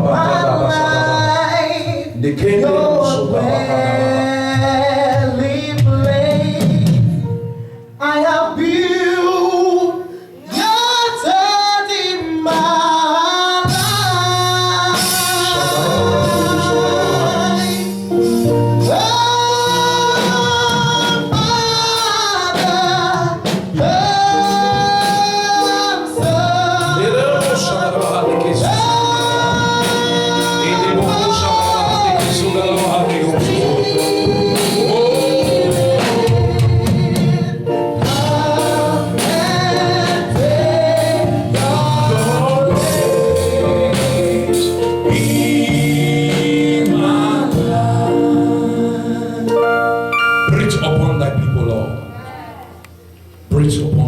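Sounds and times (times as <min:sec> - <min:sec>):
choir singing gospel song: 0:00.0 - 0:07.3, 0:08.0 - 0:52.6
instrumental accompaniment: 0:12.3 - 0:54.0.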